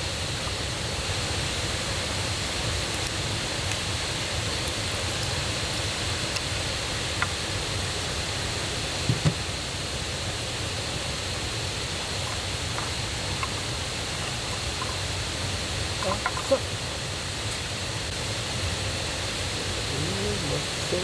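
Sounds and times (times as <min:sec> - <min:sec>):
stream and waterfall rushing: 0:05.8 - 0:21.0.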